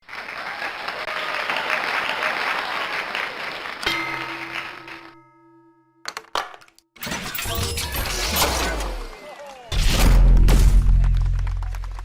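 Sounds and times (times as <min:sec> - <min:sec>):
applause: 0:00.0 - 0:05.2, 0:11.0 - 0:12.0.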